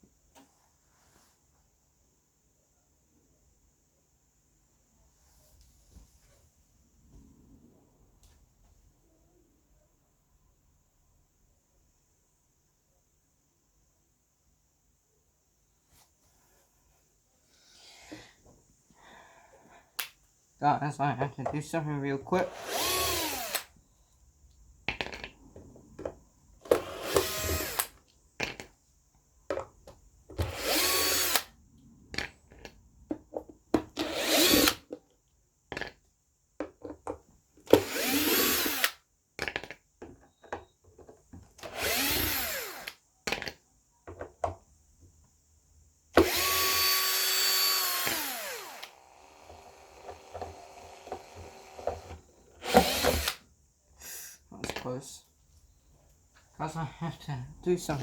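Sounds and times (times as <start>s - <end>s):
power drill whining: 22.4s - 23.7s, 26.6s - 28.0s, 30.4s - 31.5s, 34.0s - 34.8s, 37.7s - 39.0s, 41.6s - 43.0s, 46.2s - 53.4s.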